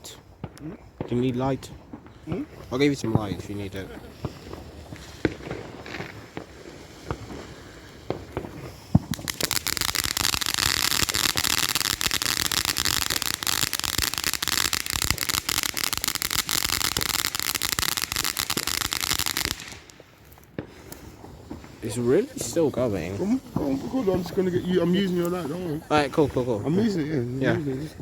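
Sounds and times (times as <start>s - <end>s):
firework crackling: 0.0s - 28.0s.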